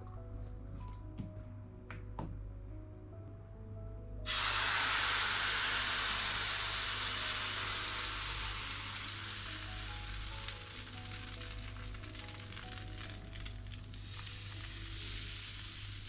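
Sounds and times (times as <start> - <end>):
quiet background music: 0.0 - 16.0
batter sizzling in frying pan: 4.3 - 16.0.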